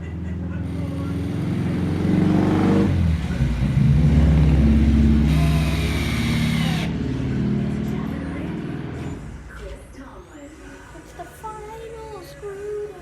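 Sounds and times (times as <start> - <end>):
motor running loud: 3.2 - 9.0.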